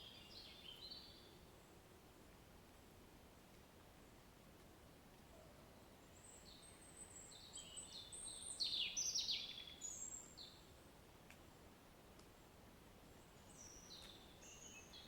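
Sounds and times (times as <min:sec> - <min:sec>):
songbird singing: 0:00.0 - 0:01.8, 0:05.3 - 0:10.9, 0:12.2 - 0:15.0
faint rain hiss: 0:00.0 - 0:15.0.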